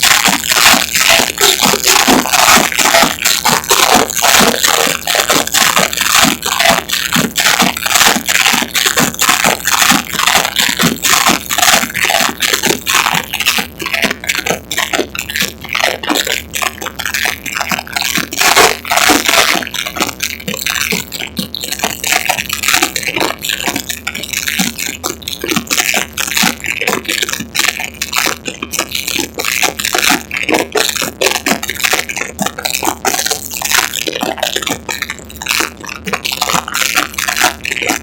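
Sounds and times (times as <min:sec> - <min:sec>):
distorted crackling noise: 0:00.0 - 0:38.0.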